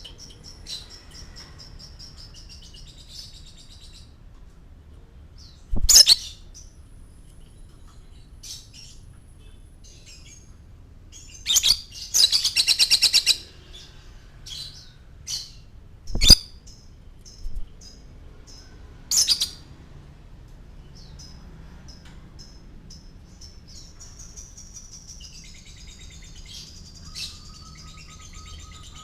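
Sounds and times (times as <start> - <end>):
lovebird chirping: 5.4 - 6.8, 11.1 - 19.6, 22.4 - 29.0.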